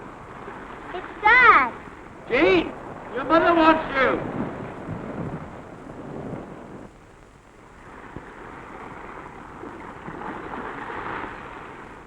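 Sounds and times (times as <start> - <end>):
surf washing on beach: 0.0 - 12.0
wind: 0.0 - 12.0.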